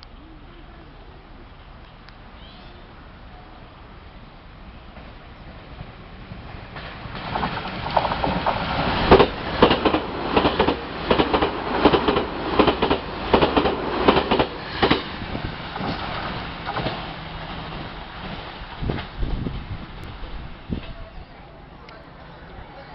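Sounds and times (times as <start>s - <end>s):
train wheels clicking over rail joints: 6.6s - 21.0s.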